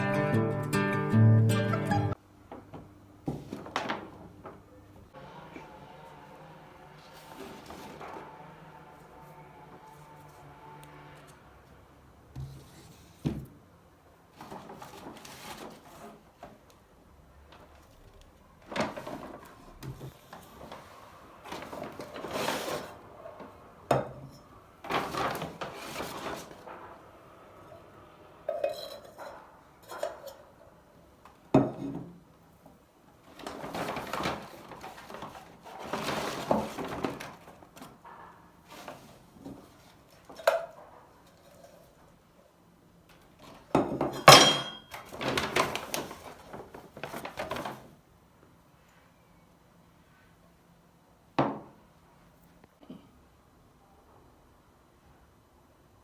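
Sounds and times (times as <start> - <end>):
rustling: 14.3 - 16.6, 17.5 - 23.5, 24.8 - 27.0, 32.6 - 40.5, 44.9 - 48.0
dishes and cutlery clinking: 28.5 - 30.6, 43.8 - 45.1.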